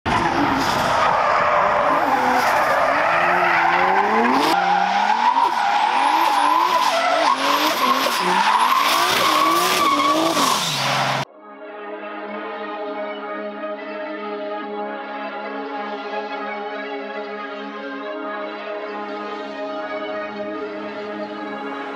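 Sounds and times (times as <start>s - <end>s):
car engine revving hard: 3.1s - 4.6s, 6.0s - 11.3s.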